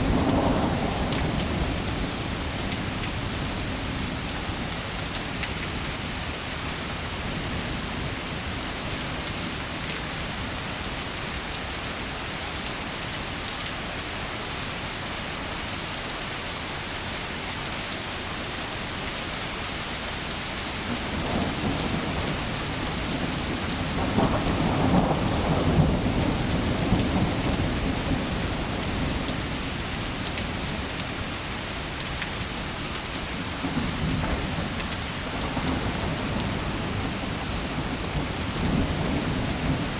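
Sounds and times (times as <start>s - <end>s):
thunder rumbling: 0.0s - 4.0s, 20.9s - 30.8s, 33.5s - 39.9s
steady rain: 0.0s - 39.9s.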